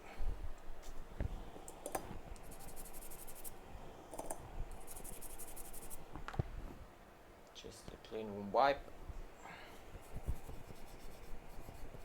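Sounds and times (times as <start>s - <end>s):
fast fine scratching: 2.4s - 3.6s, 4.7s - 6.0s, 10.0s - 12.0s.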